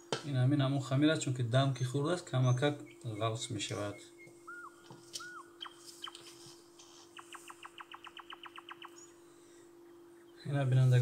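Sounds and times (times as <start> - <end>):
faint steady hum: 0.0 - 11.0
bird trill: 1.8 - 6.4, 7.1 - 9.2
small bird chirping: 1.8 - 9.2.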